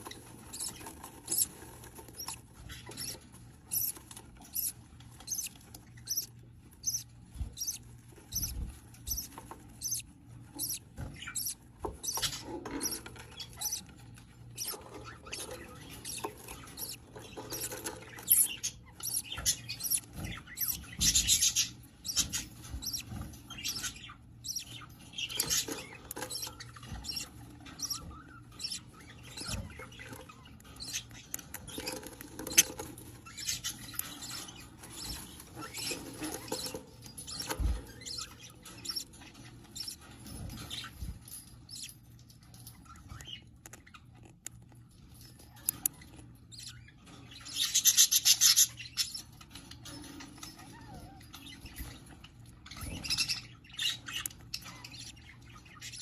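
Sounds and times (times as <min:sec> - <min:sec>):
scratchy rustling: 0:00.0 - 0:13.9
squeaky bird chirps: 0:00.0 - 0:44.6, 0:45.2 - 0:56.0.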